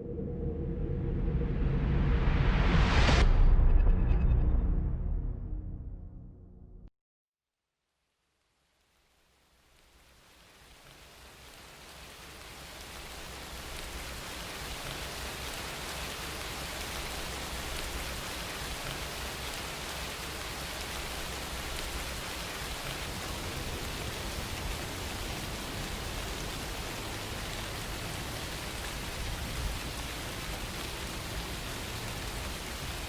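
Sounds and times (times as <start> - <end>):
rain falling: 8.9 - 33.0.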